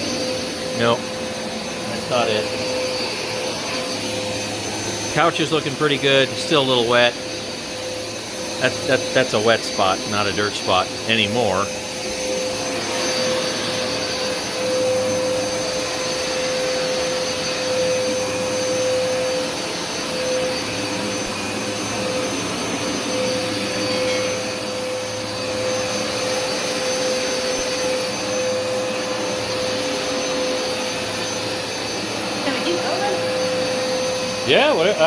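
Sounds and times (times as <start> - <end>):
carpet washer motor droning: 0.0 - 35.0.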